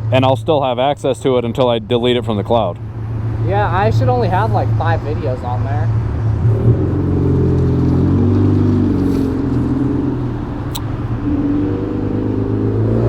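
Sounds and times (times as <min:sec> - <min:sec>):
sharp click: 0:10.7 - 0:11.0.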